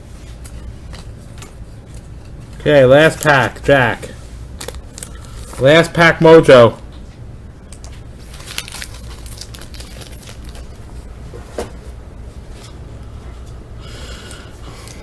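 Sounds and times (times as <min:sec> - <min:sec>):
steady low hum: 0:00.0 - 0:15.0
wrapper crinkling: 0:04.6 - 0:05.7, 0:08.2 - 0:10.8.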